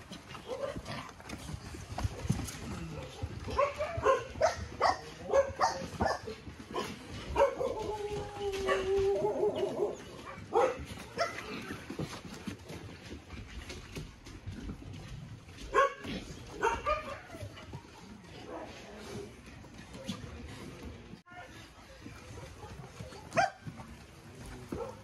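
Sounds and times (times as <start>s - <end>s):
dogs barking: 0.3s - 12.0s, 15.5s - 19.2s, 22.2s - 24.0s, 24.6s - 25.0s.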